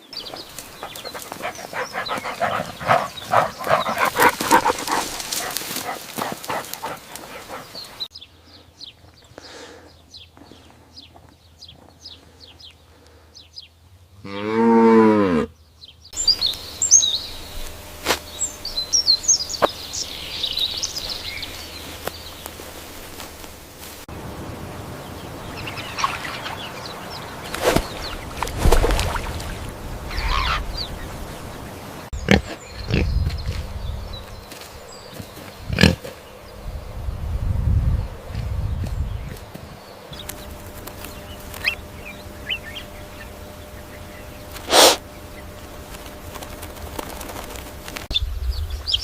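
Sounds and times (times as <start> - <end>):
cow mooing: 14.2 - 15.5
high chirping calls: 15.8 - 22.6, 25.2 - 28.4, 30.1 - 35.5, 40.0 - 45.5.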